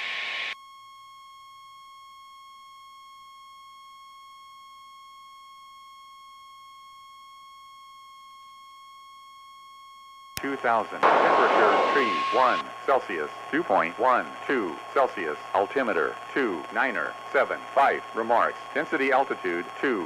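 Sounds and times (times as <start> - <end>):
radio hiss: 0.0 - 0.6, 10.4 - 20.0
faint electronic whine: 0.0 - 20.0.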